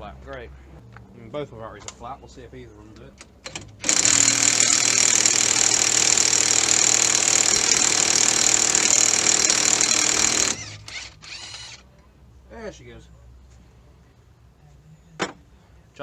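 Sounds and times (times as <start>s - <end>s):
impact wrench hammering: 3.3s - 11.8s.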